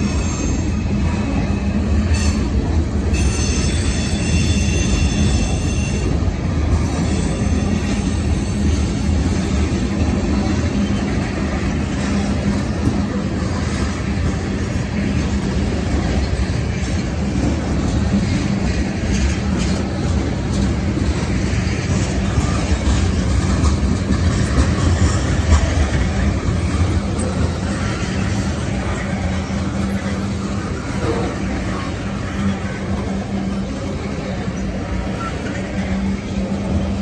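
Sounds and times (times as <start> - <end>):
steel wheels rumbling on rails: 0.0 - 37.0.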